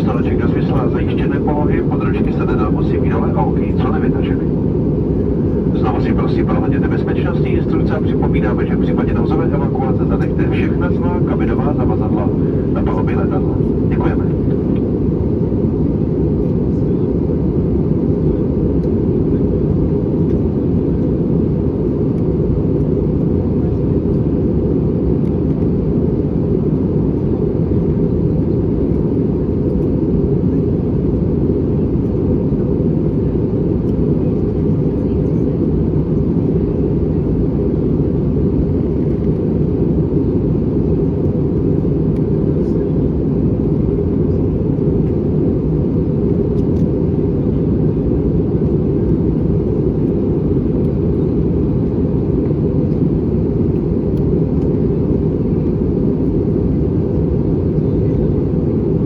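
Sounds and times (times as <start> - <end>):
airplane cabin engine rumble: 0.0 - 59.0.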